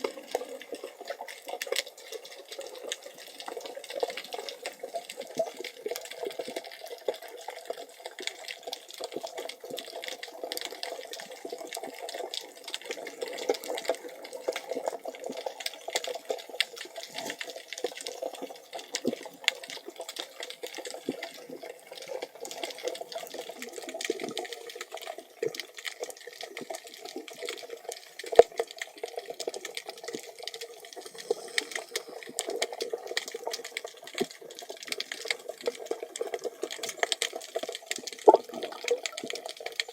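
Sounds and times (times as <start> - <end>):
small crackling clicks: 0.0 - 39.9
underwater hollow hiss: 26.9 - 36.4.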